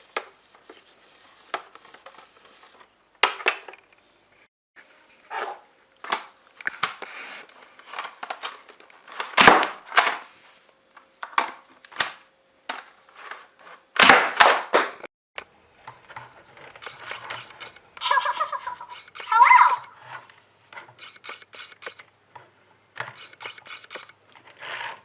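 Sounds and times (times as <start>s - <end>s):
plastic toy parts clicking: 18.8s - 19.9s, 20.8s - 22.1s, 23.0s - 24.8s.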